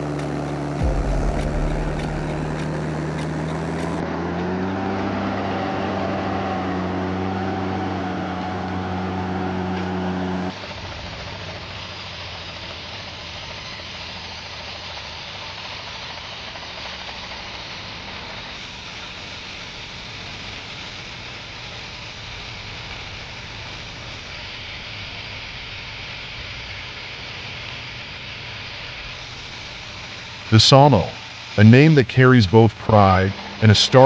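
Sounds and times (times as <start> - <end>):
steady rushing noise: 0.0 - 4.0
heavy truck engine: 0.0 - 11.9, 28.0 - 34.0.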